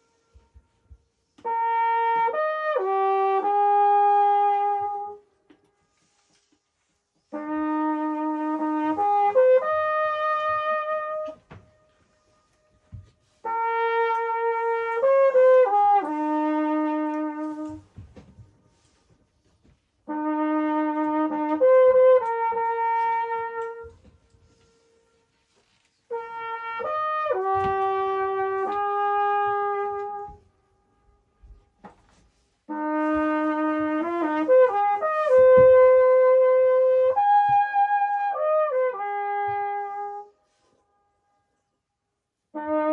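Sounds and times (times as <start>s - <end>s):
trumpet echo off rock: 0.0s - 5.8s, 7.2s - 18.9s, 20.0s - 25.3s, 26.1s - 30.6s, 32.6s - 40.4s
trumpet playing slow tune: 0.0s - 42.9s.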